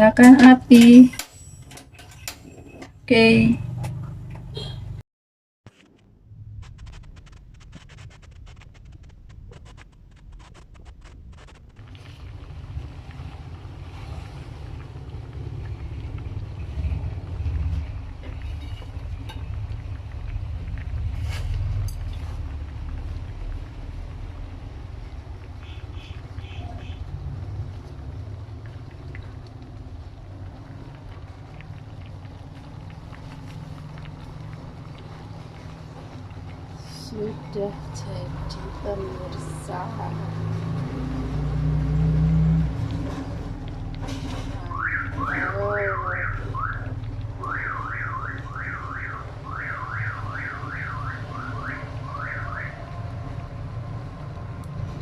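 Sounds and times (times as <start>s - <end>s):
cooking fire crackling: 5.7s - 55.0s
pot simmering low rumble: 5.8s - 55.0s
small bubbling pops: 27.8s - 37.3s, 44.6s - 52.7s.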